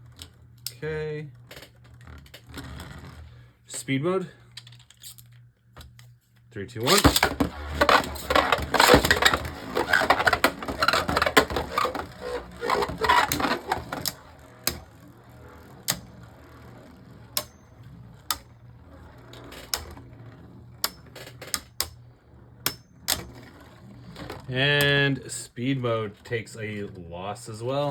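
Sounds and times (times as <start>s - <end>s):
plastic rattle of collisions: 6.8s - 14.9s
spinning tops clashing: 6.8s - 20.0s
sharp clicks and knocks: 6.9s - 14.9s, 20.8s - 22.0s, 22.6s - 23.5s.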